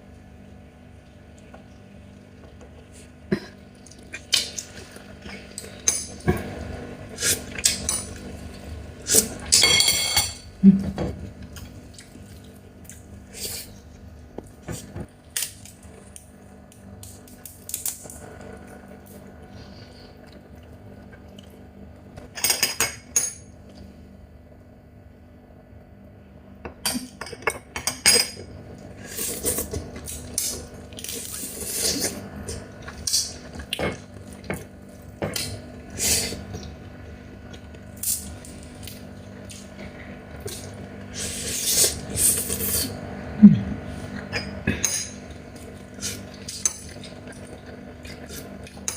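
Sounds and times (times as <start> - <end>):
utensils and dishes clinking: 9.5 - 10.5.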